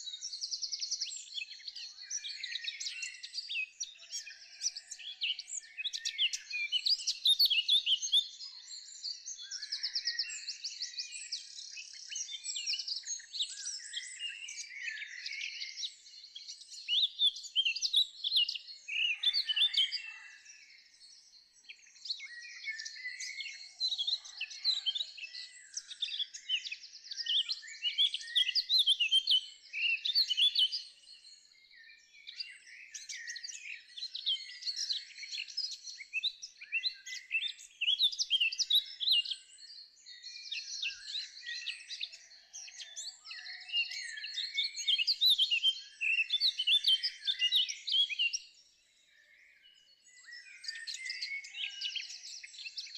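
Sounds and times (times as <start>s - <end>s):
songbirds singing and chirping: 0.0s - 52.9s.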